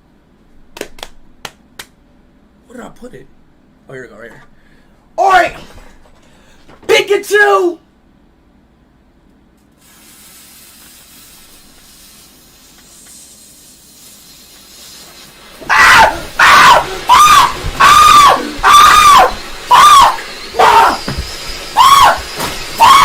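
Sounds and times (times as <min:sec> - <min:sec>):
firework fuse hissing: 0:09.7 - 0:23.0
firework shrill whistles: 0:09.8 - 0:23.0.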